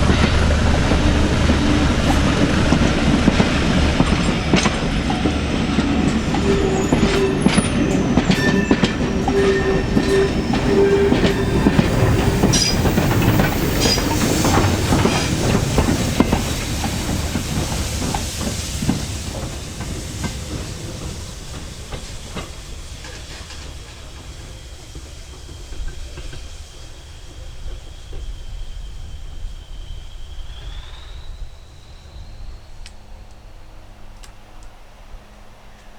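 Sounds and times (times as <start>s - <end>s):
train wheels clicking over rail joints: 0.0s - 29.6s
train wheel squeal: 0.0s - 34.1s.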